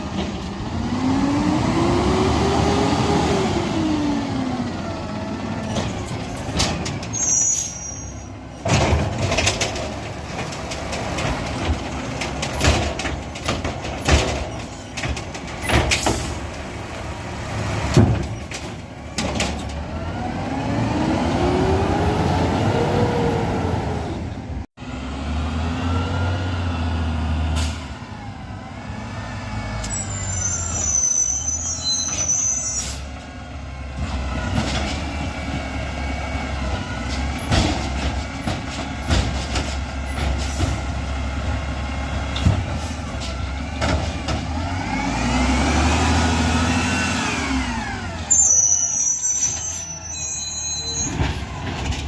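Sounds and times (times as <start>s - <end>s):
garbage truck diesel engine revving: 0.0s - 6.9s, 19.3s - 30.0s, 33.1s - 48.4s
knocks and clanks: 5.6s - 7.2s, 8.6s - 16.7s, 17.8s - 19.8s, 36.7s - 40.9s, 42.3s - 44.7s, 51.1s - 52.0s.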